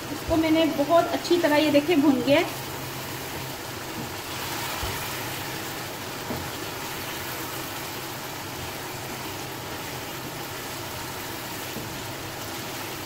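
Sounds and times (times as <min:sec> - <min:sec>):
chicken sizzling in hot oil: 0:00.0 - 0:13.0
wooden spatula knocking wok: 0:03.3 - 0:05.0, 0:06.2 - 0:06.8, 0:11.6 - 0:12.6.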